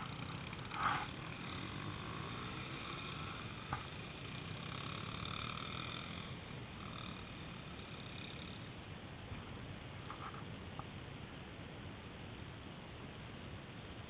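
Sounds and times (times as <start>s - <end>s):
pit bike engine buzzing: 0.0s - 9.1s.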